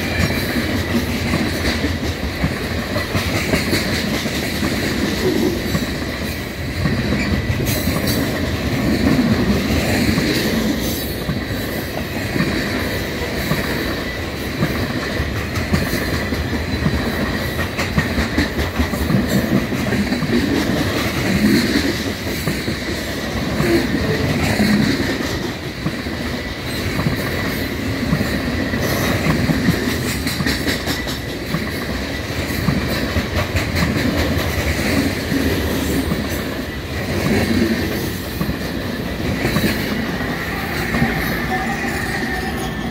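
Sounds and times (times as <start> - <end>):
train wheels rumbling over rail joints: 0.0 - 42.9
high wheel squeal: 40.2 - 42.9.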